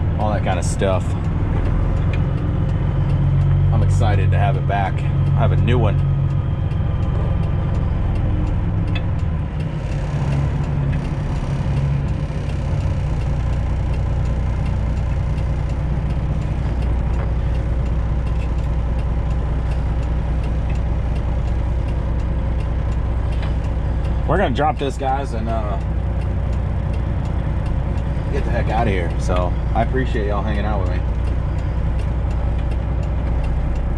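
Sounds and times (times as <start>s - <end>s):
diesel truck engine rumbling: 0.0s - 33.9s.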